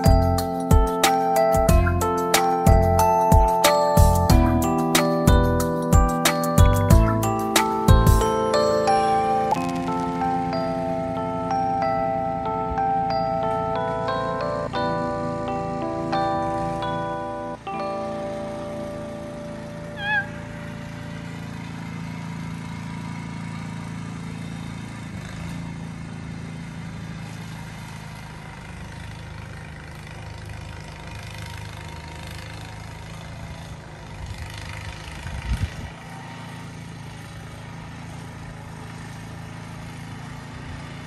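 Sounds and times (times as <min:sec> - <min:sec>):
car engine humming: 0:00.0 - 0:27.0
warbling chirp: 0:19.8 - 0:20.7.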